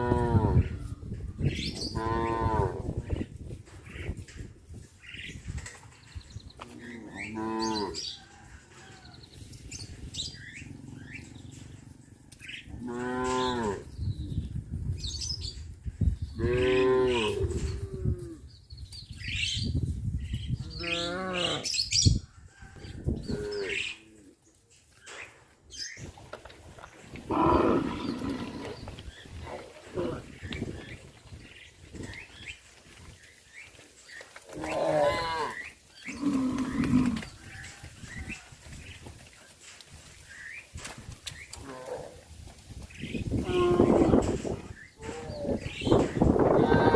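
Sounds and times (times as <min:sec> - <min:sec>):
cattle mooing: 0:43.4 - 0:45.7.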